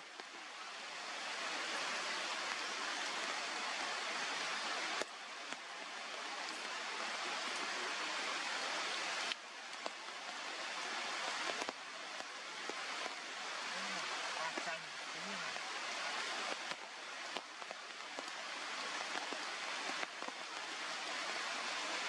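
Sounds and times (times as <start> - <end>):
rushing hiss-like outdoor noise: 0.0 - 22.0
faint clicks: 9.2 - 10.3, 11.3 - 13.2, 16.4 - 18.4.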